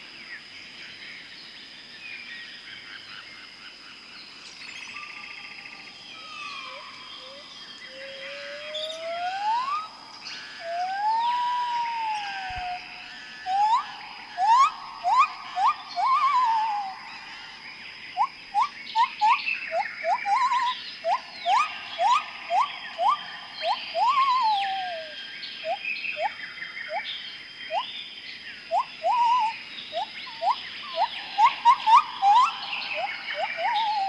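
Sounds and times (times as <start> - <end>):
faint steady high tone: 4.6 - 27.1, 28.7 - 34.0
loud pitched whistles: 8.0 - 12.9, 13.5 - 17.0, 18.2 - 26.3, 28.7 - 34.0.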